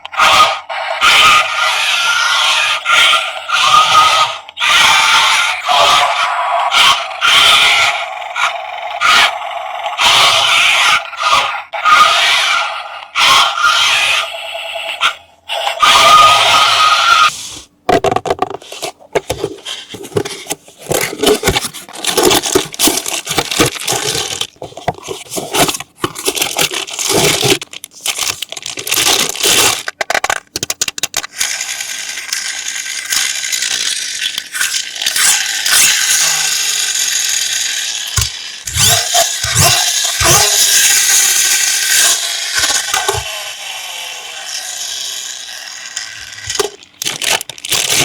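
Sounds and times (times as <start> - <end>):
plastic and cardboard packaging rustling: 17.4 - 31.3, 46.4 - 48.0.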